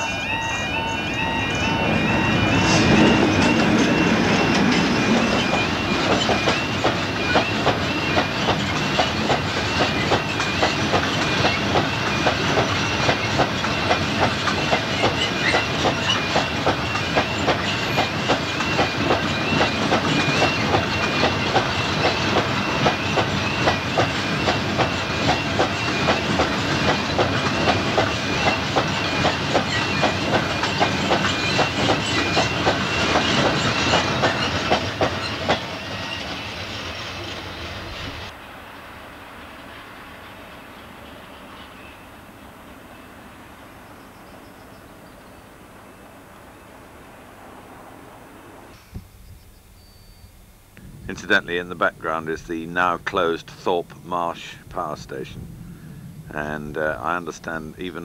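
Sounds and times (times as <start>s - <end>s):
level crossing warbling alarm: 0.0s - 6.6s
wagon wheels clacking on rails: 0.0s - 38.1s.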